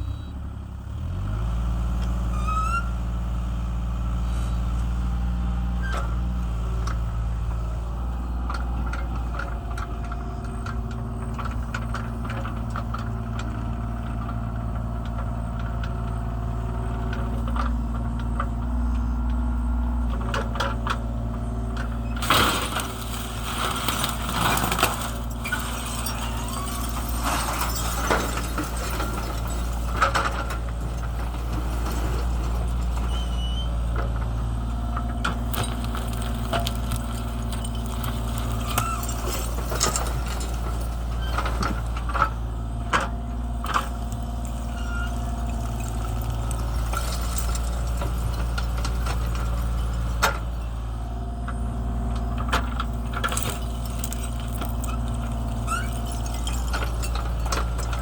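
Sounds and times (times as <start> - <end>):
excavator diesel engine running: 0.0 - 58.0
debris clanking and clinking: 8.4 - 18.6, 20.1 - 58.0.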